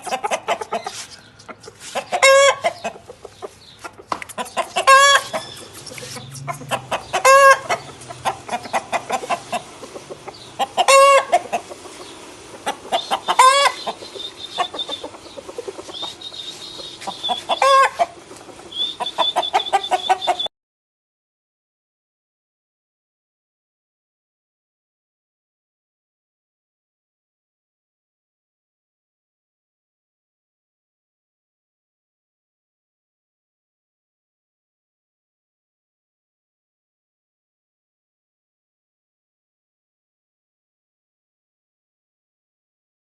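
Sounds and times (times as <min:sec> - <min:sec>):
chickens clucking: 0:00.0 - 0:20.5
loud short chicken calls: 0:01.8 - 0:02.9, 0:04.4 - 0:09.8, 0:10.6 - 0:11.8, 0:12.6 - 0:20.5.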